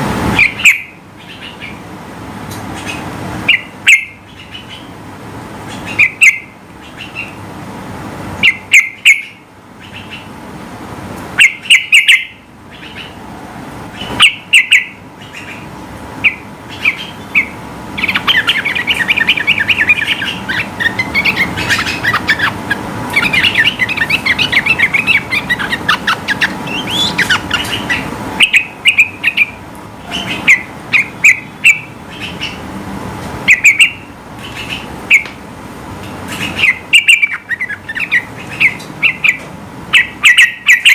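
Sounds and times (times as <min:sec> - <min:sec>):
bird singing: 0:00.4 - 0:01.8, 0:02.8 - 0:05.0, 0:05.7 - 0:07.4, 0:08.4 - 0:10.3, 0:11.4 - 0:13.2, 0:14.0 - 0:32.6, 0:33.5 - 0:35.3, 0:36.3 - 0:40.9.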